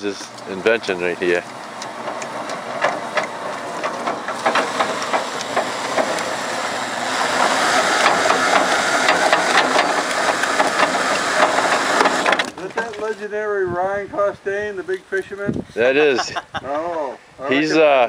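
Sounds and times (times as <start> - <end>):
motorised winch running: 0.5 - 12.6
metallic clicks and knocks: 1.8 - 6.3.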